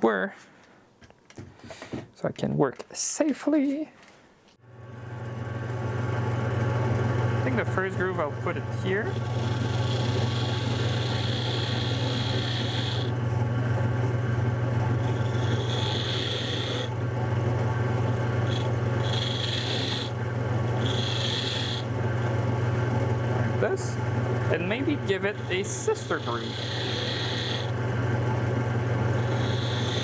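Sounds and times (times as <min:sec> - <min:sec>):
wood lathe motor humming: 0:05.2 - 0:30.0
turning tool cutting wood: 0:06.7 - 0:30.0.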